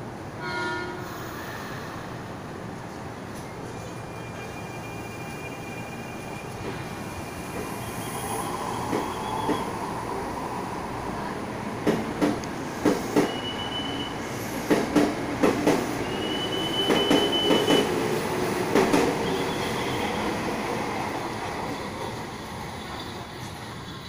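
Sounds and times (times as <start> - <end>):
high wheel squeals: 3.9 - 9.8.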